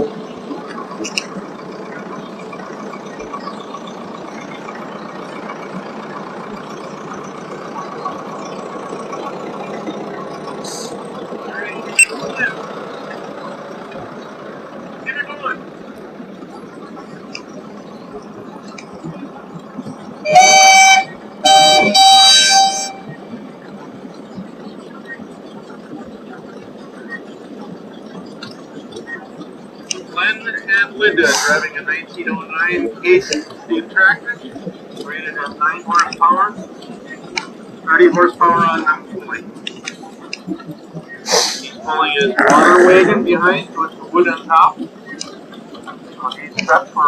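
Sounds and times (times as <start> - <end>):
old tractor engines running: 0.0 - 47.0
steam whistle: 20.2 - 23.1.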